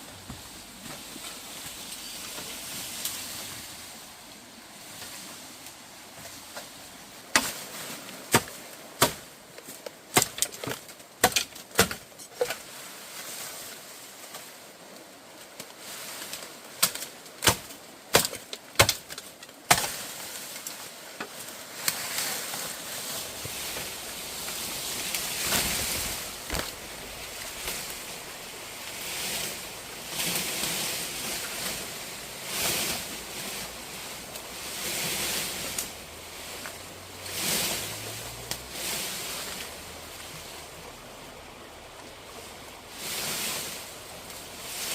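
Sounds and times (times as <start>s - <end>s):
steady rushing noise: 22.1s - 40.6s.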